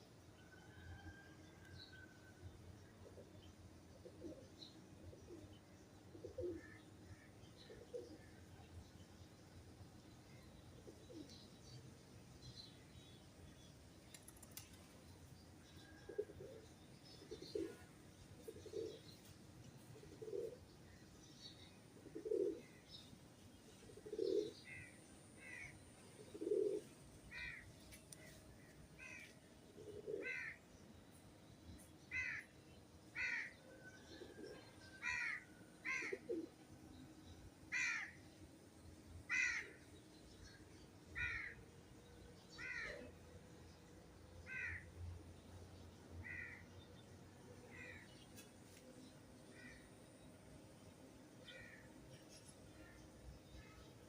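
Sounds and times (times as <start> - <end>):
pigeon cooing: 20.1 - 20.6, 22.0 - 22.6, 23.9 - 24.6, 26.2 - 26.9, 29.8 - 30.5
crow cawing: 33.2 - 33.5, 35.0 - 36.2, 37.7 - 38.2, 39.3 - 39.8, 44.5 - 44.8.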